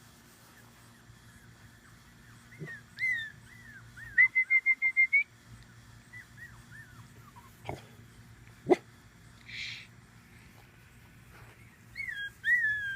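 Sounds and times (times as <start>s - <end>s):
puppies whimpering: 0.6s - 4.3s, 6.0s - 7.6s, 11.5s - 12.9s
puppy squeaky yips: 12.0s - 12.9s.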